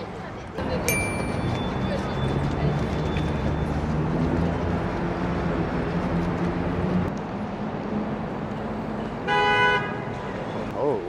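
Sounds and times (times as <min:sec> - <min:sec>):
street traffic: 0:00.0 - 0:11.0
vehicle horn honk: 0:09.3 - 0:10.1.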